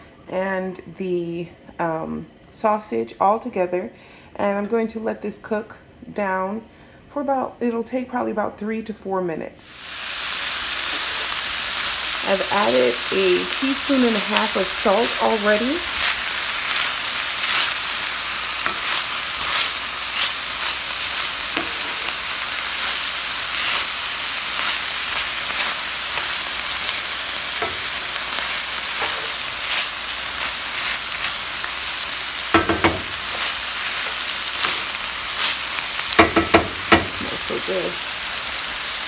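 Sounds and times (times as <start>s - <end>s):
food sizzling in oil: 9.6s - 39.0s.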